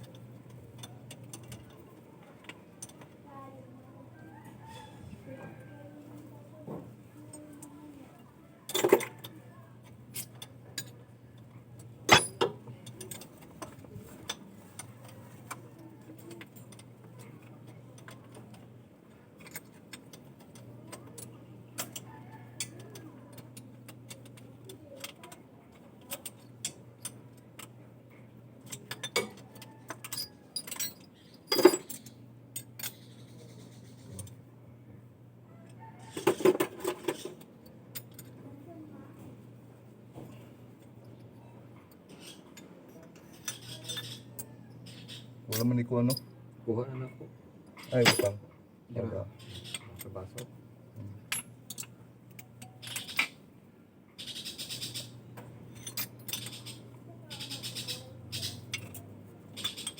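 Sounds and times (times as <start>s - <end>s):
metal tools clinking and knocking: 0.0s - 3.1s, 8.7s - 18.7s, 19.4s - 27.8s, 28.6s - 33.3s, 35.8s - 38.4s, 40.2s - 46.3s, 47.8s - 48.4s, 51.2s - 53.4s, 54.6s - 59.9s.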